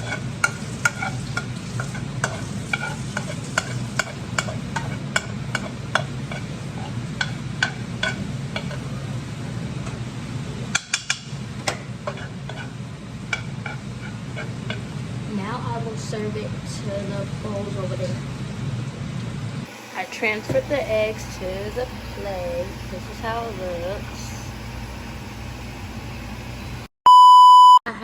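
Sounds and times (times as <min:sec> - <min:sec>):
utensil scraping frying pan: 0:00.0 - 0:09.2, 0:10.7 - 0:15.0
food sizzling: 0:00.0 - 0:15.0, 0:19.7 - 0:26.9
steady low hum: 0:00.0 - 0:26.9.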